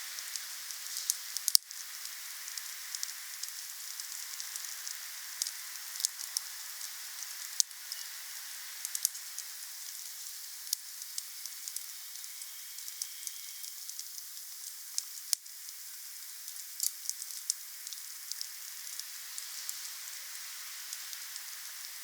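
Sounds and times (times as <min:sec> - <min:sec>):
wood fire crackling and popping: 0:00.2 - 0:07.7, 0:08.8 - 0:19.8.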